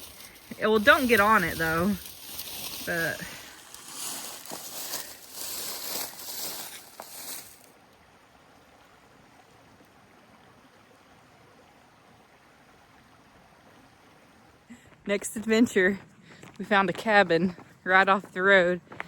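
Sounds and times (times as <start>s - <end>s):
faint steady hiss: 0.0s - 15.2s.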